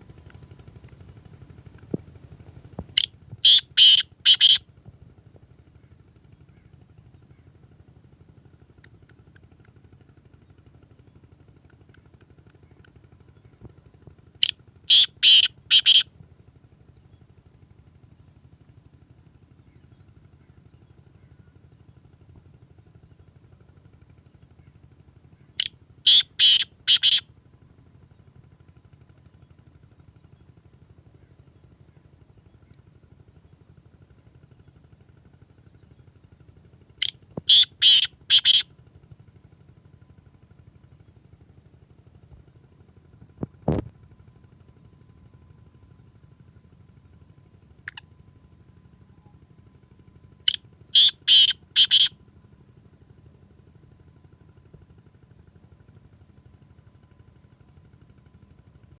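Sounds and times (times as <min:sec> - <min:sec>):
bird harsh loud calls: 0:03.0 - 0:04.6, 0:14.9 - 0:16.0, 0:25.6 - 0:27.2, 0:37.0 - 0:38.7, 0:50.5 - 0:52.1.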